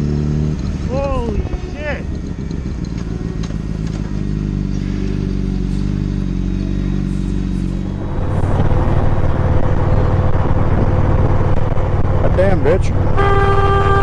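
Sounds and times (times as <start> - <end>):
loud rough engine: 0.0 - 14.0
motorcycle engine running: 0.0 - 14.0.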